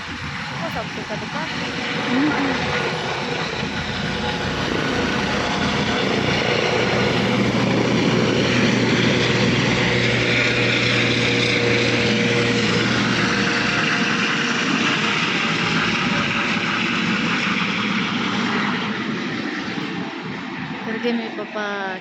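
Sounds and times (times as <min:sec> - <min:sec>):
low hum: 0:00.0 - 0:16.7
helicopter engine and rotor: 0:00.0 - 0:22.0.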